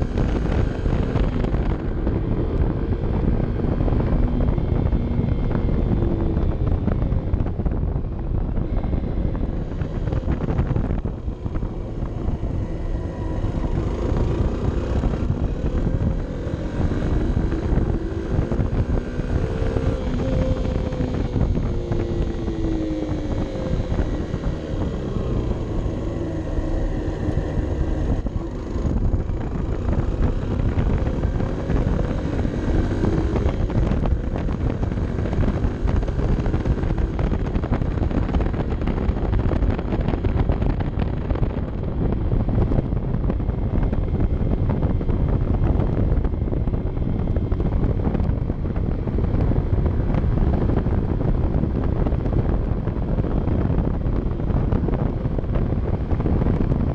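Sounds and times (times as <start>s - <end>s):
motorcycle engine running: 0.0s - 56.9s
wind noise on microphone: 0.0s - 56.9s.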